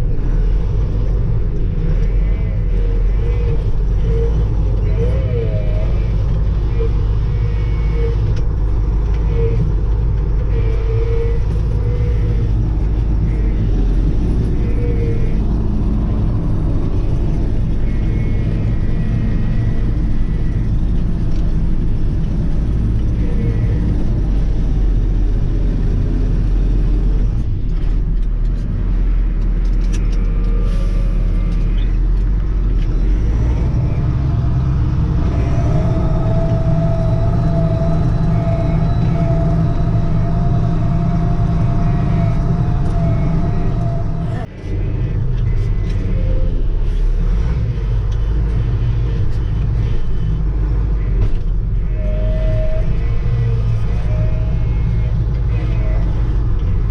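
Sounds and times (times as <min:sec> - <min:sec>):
tractor diesel engine rumbling: 0:00.0 - 0:56.9
short squeaks: 0:27.7 - 0:50.4.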